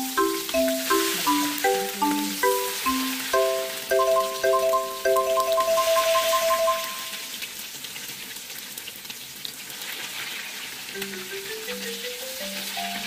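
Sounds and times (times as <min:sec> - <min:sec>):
light background music: 0:00.0 - 0:07.1, 0:11.1 - 0:13.0
oil sizzling in a frying pan: 0:00.0 - 0:13.0.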